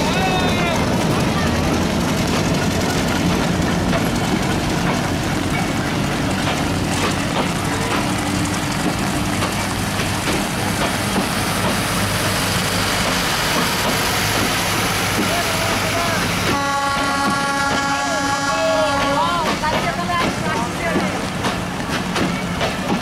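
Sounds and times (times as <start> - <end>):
wheels clicking over rail joints: 0.0 - 12.0, 18.8 - 23.0
steel wheels rumbling on rails: 0.0 - 23.0.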